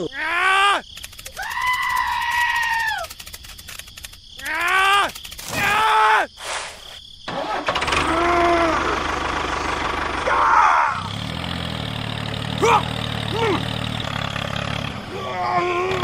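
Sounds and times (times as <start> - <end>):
small engine idling: 7.3 - 16.0.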